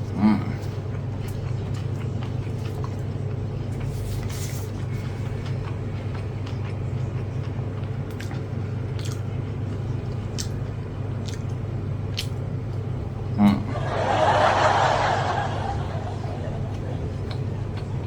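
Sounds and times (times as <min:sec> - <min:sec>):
steady low hum: 0:00.0 - 0:18.0
chewing clicks: 0:00.6 - 0:03.9, 0:05.2 - 0:12.9, 0:16.6 - 0:18.0.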